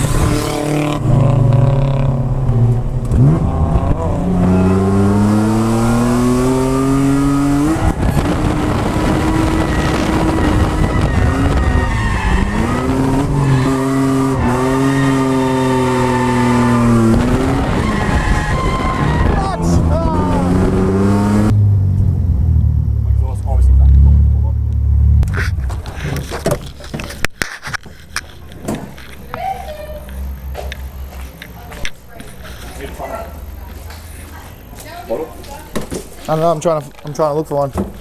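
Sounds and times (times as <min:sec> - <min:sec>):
car engine revving hard: 0:00.0 - 0:22.7
tyre noise: 0:24.7 - 0:36.3.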